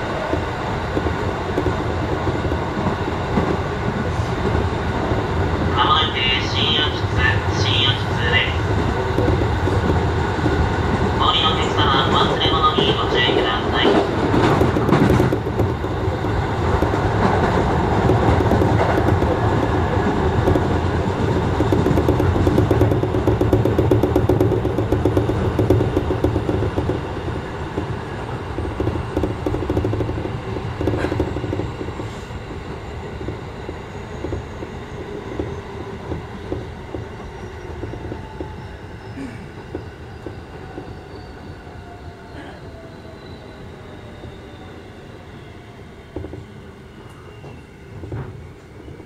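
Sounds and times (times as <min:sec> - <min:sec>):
train running noise: 0:00.0 - 0:49.0
wheel clacks over rail joints: 0:12.1 - 0:38.6.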